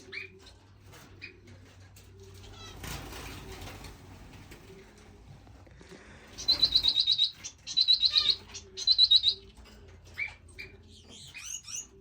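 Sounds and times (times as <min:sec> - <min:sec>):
finches chirping: 0:06.4 - 0:09.6, 0:10.2 - 0:12.0.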